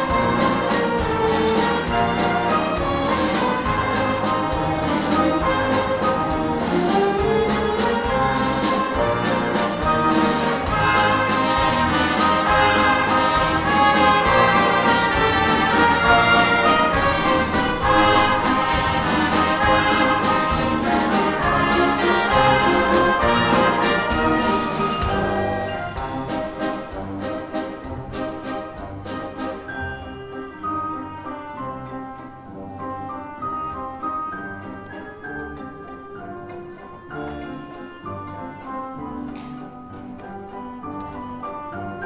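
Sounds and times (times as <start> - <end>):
orchestra with brass melody: 0.0 - 42.0.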